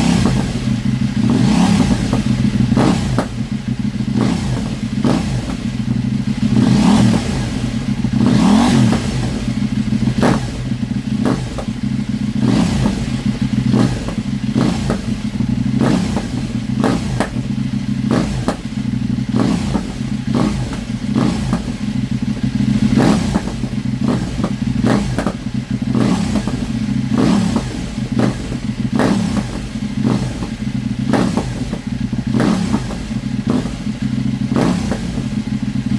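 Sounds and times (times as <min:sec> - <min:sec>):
exhaust pops: 0:00.0 - 0:35.9
motorcycle engine idling: 0:00.0 - 0:35.9.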